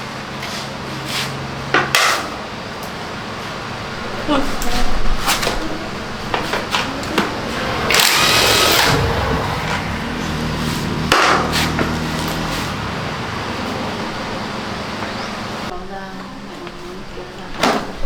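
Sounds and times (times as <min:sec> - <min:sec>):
power driver motor whining: 0:05.8 - 0:15.7.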